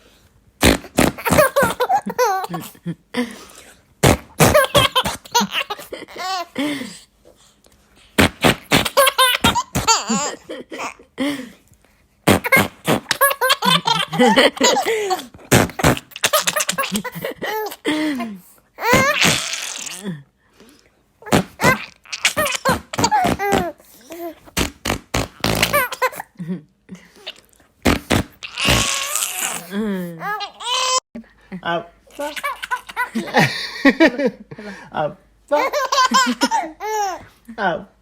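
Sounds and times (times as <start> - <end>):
toddler giggling: 1.2 - 2.8, 18.8 - 20.0, 21.3 - 24.4.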